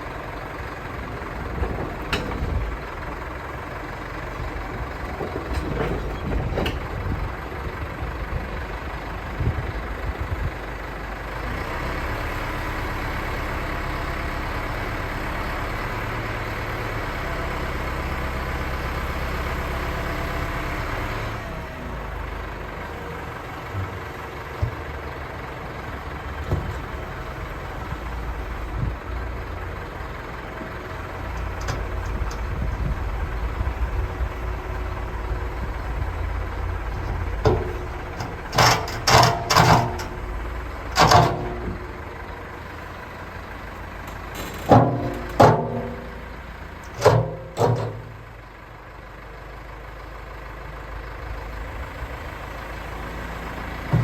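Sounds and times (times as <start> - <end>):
diesel engine running: 0.0 - 54.0
loud metal clanks: 36.9 - 40.3, 40.9 - 42.0, 44.1 - 48.3.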